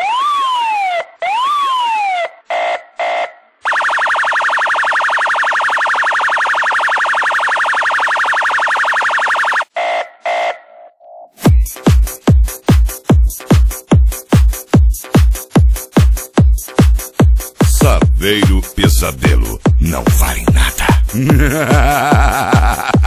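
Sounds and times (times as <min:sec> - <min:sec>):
siren wails: 0:00.0 - 0:11.0.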